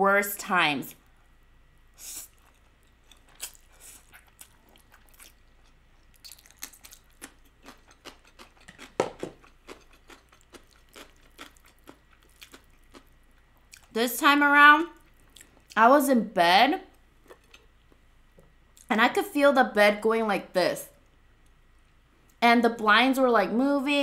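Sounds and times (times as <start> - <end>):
chewing with wet mouth clicks: 2.4 - 13.9.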